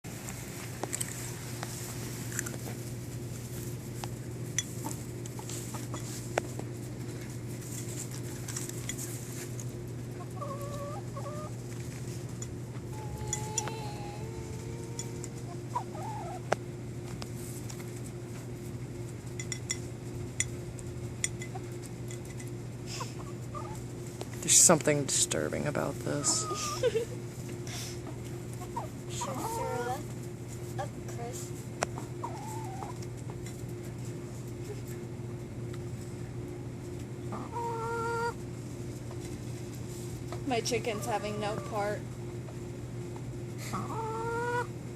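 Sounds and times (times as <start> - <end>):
steady low hum: 0.1 - 44.9
hen clucking softly: 10.2 - 11.6, 12.9 - 16.5, 26.2 - 26.8, 32.0 - 33.0, 37.3 - 38.4, 43.6 - 44.7.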